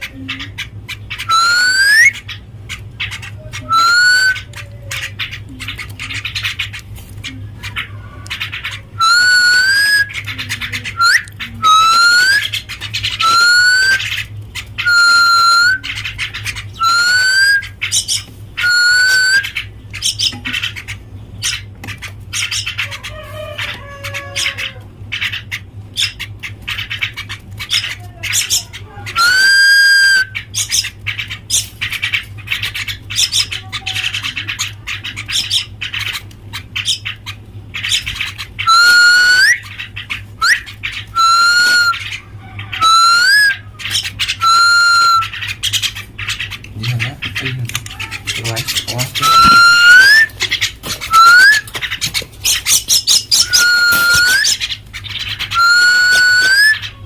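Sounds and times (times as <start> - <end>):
birds whistled calls: 0.0 - 57.0
low electrical hum: 0.0 - 57.0
bird clicking chatter: 47.4 - 56.9.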